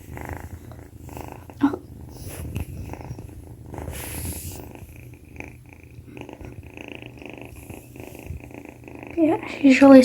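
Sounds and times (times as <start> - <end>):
kitten purring: 0.0 - 10.0.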